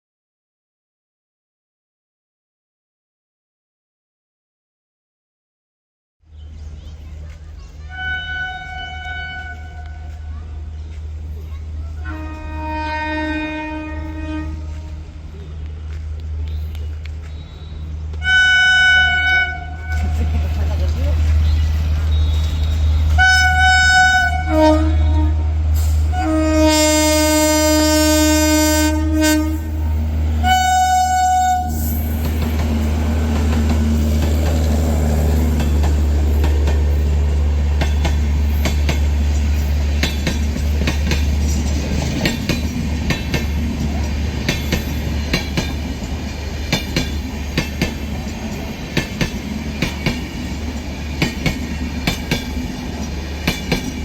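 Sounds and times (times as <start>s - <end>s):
train rumbling past: 6.3s - 54.0s
train horn blasts: 7.9s - 10.3s, 12.0s - 15.1s, 17.3s - 20.2s, 22.1s - 32.4s
wheels clacking over rail joints: 32.0s - 54.0s.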